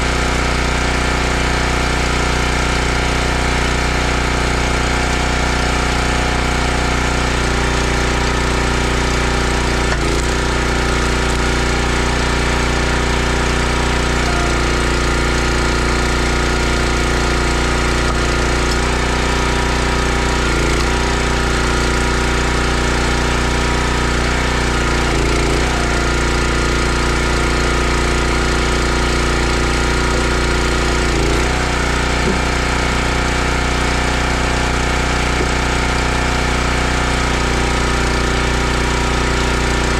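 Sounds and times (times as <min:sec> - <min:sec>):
log splitter gas engine running: 0:00.0 - 0:39.9.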